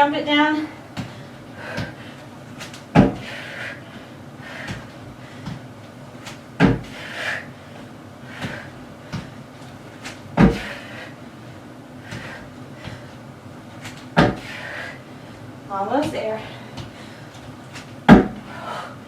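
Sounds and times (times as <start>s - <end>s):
feet landing on a box: 2.6s - 3.4s, 6.3s - 7.1s, 8.4s - 9.4s, 10.0s - 10.8s, 13.8s - 14.6s, 17.8s - 18.6s.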